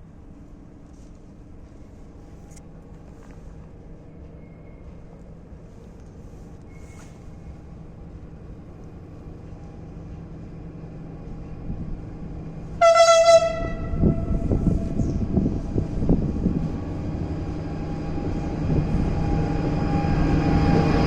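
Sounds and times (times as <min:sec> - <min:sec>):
locomotive engine rumble: 0:00.0 - 0:21.0
train horn blast: 0:12.7 - 0:15.2.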